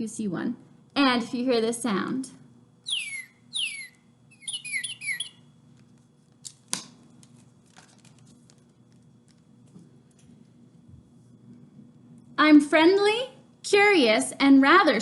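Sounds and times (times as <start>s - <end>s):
recorded bird song: 2.8s - 5.5s.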